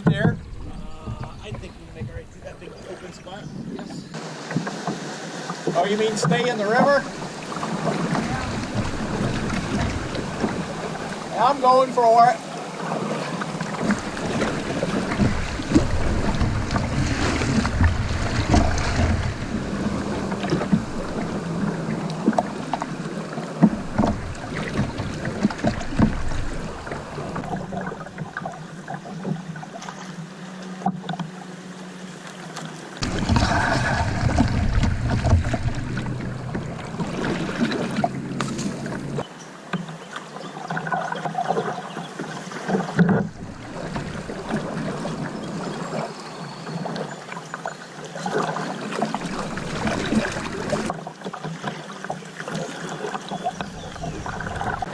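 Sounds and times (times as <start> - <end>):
low microphone rumble: 0.0 - 4.2, 33.0 - 39.2
paddle splashes: 0.0 - 54.9
rushing river water: 0.0 - 54.9.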